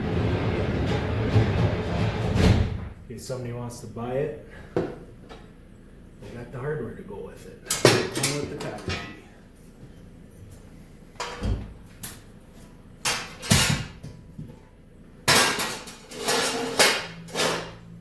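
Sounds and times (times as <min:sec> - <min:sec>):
metal tools clanking: 0:07.6 - 0:09.7.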